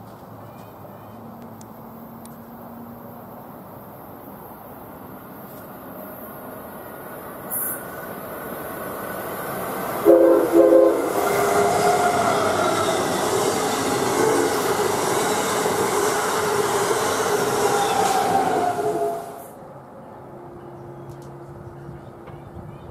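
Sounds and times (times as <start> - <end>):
high-speed train rushing past: 1.8 - 22.8
train horn blasts: 10.0 - 14.9, 17.8 - 19.5.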